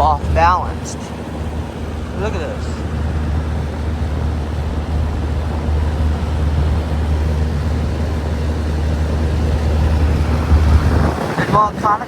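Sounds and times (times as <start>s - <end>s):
air conditioner unit humming: 0.0s - 12.0s
rush of fan air: 0.0s - 12.0s.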